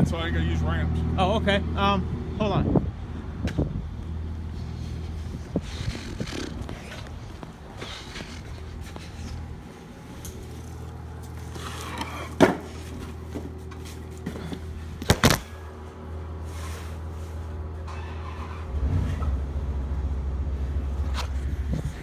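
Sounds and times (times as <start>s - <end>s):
truck engine idling: 0.0s - 22.0s
sharp thumps: 15.0s - 15.6s.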